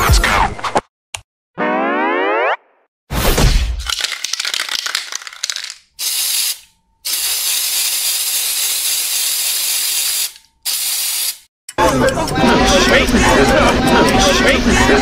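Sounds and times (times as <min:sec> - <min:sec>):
spray can rattling: 0:03.9 - 0:11.5
spray paint hissing: 0:04.0 - 0:11.5.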